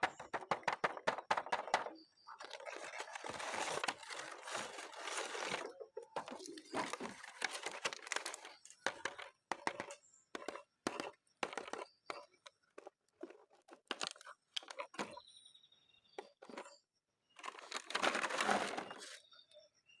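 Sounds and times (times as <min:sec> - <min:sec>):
plastic packaging crinkling: 0:02.4 - 0:09.9, 0:17.4 - 0:19.2.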